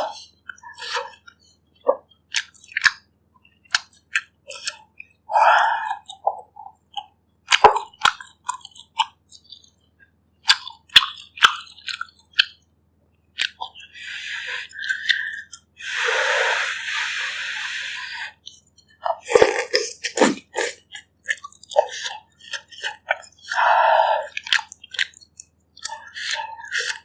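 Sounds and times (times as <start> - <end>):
chewing with wet mouth clicks: 0.4 - 5.2, 5.9 - 12.6, 13.3 - 13.8, 14.6 - 15.7, 18.4 - 27.0
wet slurping: 13.4 - 27.0.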